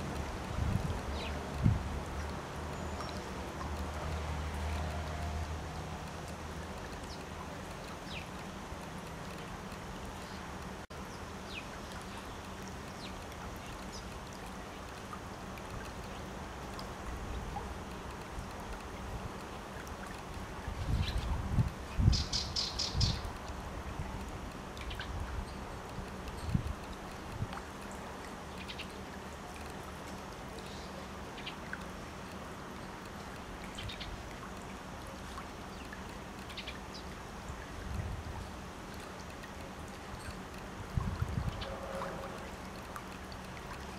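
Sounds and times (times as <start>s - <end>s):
wind rumble on microphone: 0.0s - 2.5s, 20.3s - 27.6s, 37.5s - 38.7s, 40.1s - 42.7s
outdoor background hiss: 0.0s - 43.9s.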